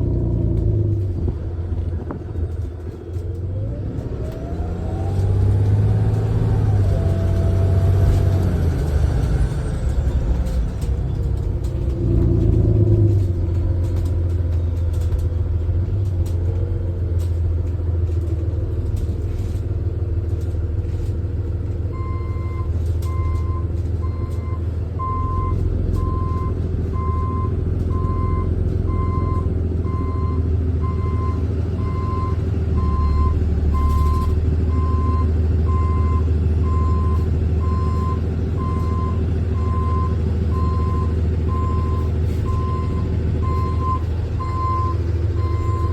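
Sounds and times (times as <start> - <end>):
bus engine running: 0.0 - 45.9
reversing alarm beeping: 22.0 - 45.9.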